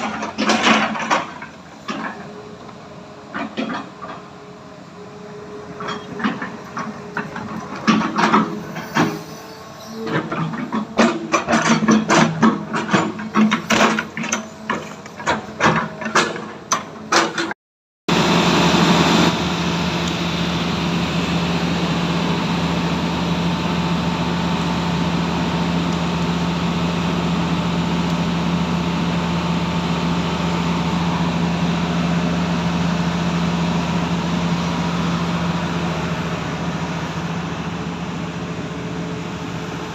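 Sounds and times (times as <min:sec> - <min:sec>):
machine clanking and knocking: 0:00.0 - 0:02.4, 0:05.8 - 0:09.3, 0:10.0 - 0:17.6
diesel engine running loudly: 0:00.0 - 0:16.8, 0:18.1 - 0:39.9.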